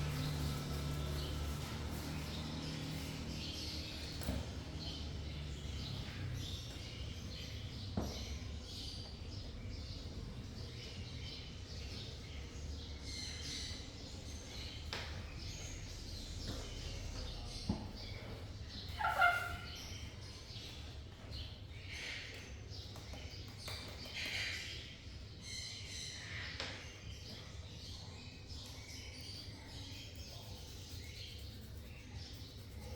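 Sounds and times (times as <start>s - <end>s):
steady low hum: 0.0s - 7.7s
parrots chirping: 18.8s - 20.1s
parrot squawk: 18.9s - 19.8s.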